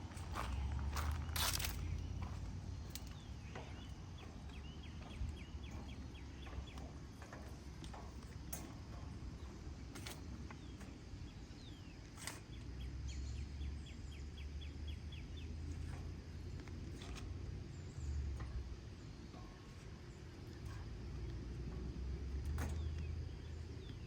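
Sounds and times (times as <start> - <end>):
footsteps in dry leaves: 0.0 - 2.0
low steady rumble: 0.0 - 12.0
songbird chirping: 0.0 - 24.0.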